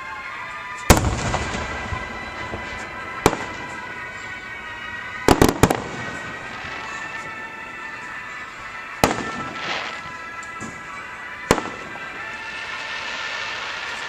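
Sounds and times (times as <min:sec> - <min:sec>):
rumbling echo: 0:00.9 - 0:08.0.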